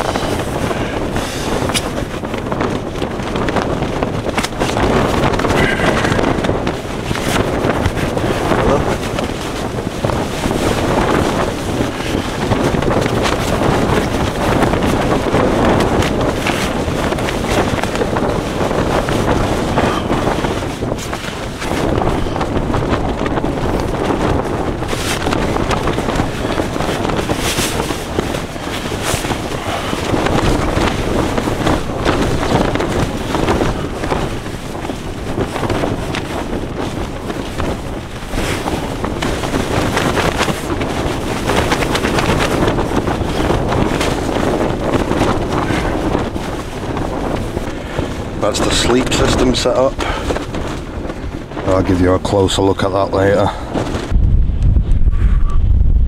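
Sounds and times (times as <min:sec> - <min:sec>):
strong wind blasting microphone: 0:00.0 - 0:56.0
short sharp rustles: 0:24.8 - 0:44.4.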